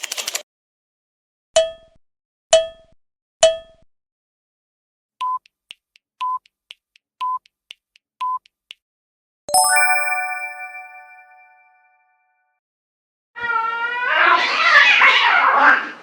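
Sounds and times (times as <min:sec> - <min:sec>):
bright chime: 0:09.5 - 0:11.8.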